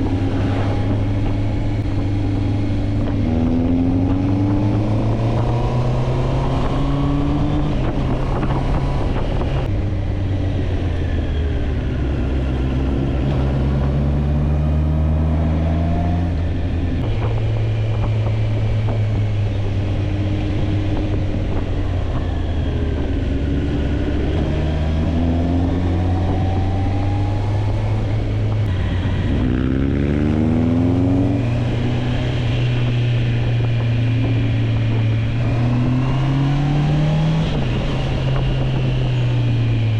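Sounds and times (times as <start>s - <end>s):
wind rushing: 0.0s - 14.4s, 15.1s - 39.9s
motorcycle engine accelerating: 0.0s - 39.9s.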